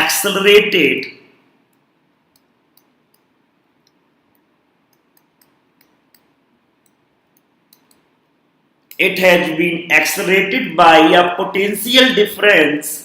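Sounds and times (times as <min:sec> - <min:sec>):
faint irregular clicks: 0:01.7 - 0:08.1.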